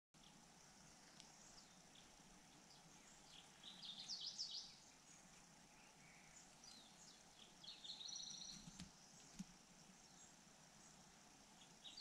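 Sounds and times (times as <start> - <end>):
nestling birds chirping: 0.2 - 12.0.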